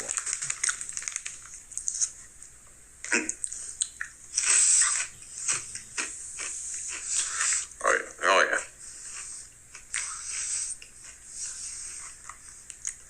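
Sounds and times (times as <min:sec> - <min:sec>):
person chewing crunchy chips: 0:00.0 - 0:02.2, 0:03.3 - 0:07.7.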